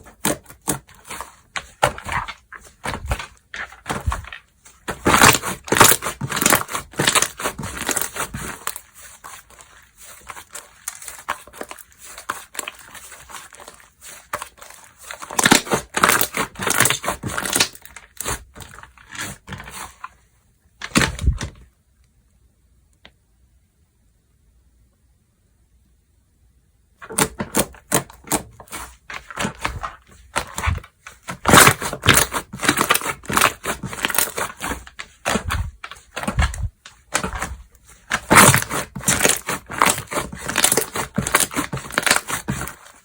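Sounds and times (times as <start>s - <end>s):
slime crackling and popping: 0.0s - 19.3s, 31.4s - 42.7s.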